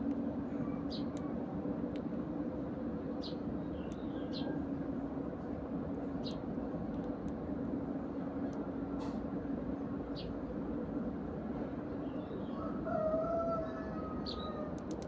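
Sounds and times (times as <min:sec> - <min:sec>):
low mechanical hum: 0:00.0 - 0:15.0
sparrows chirping: 0:00.7 - 0:01.2, 0:03.1 - 0:04.8, 0:06.1 - 0:06.5, 0:10.1 - 0:10.4, 0:11.8 - 0:12.7, 0:14.2 - 0:14.6.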